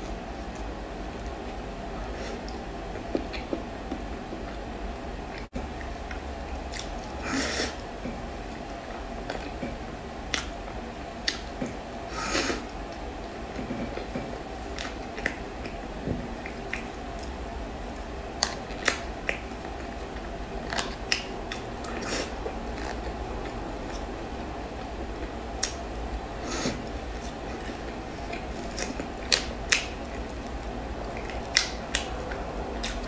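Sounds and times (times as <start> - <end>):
steady low hum: 0.0 - 33.0
wet mouth clicks while chewing: 5.4 - 7.0, 11.2 - 11.5, 16.4 - 17.4, 18.4 - 24.1, 25.6 - 25.8, 26.8 - 33.0.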